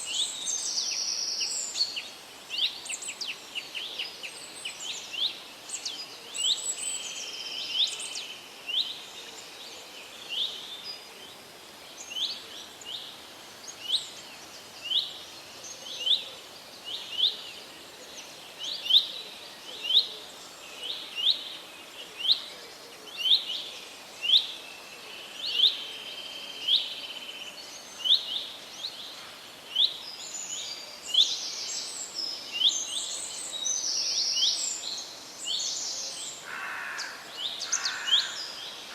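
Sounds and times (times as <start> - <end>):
steady hiss: 0.0 - 38.9.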